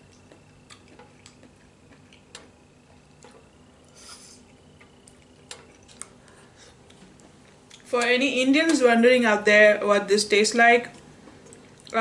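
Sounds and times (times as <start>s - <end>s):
mouth clicks while chewing: 0.1s - 3.4s
short hiss: 3.9s - 4.5s.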